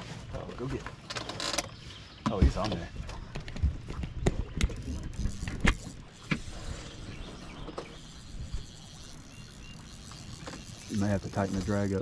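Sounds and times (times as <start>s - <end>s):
fishing reel clicks: 4.7s - 12.0s.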